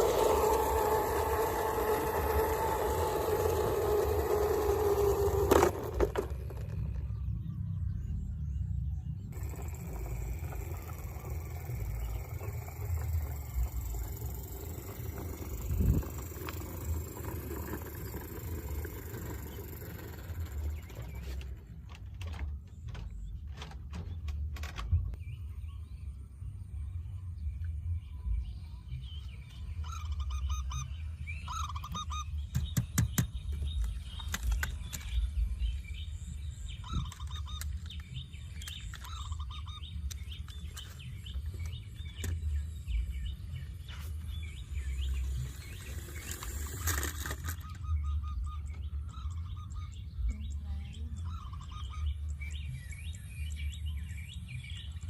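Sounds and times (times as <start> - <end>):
steady low rumble: 0.0 - 31.8, 47.7 - 55.0
birds chirping: 0.0 - 55.0.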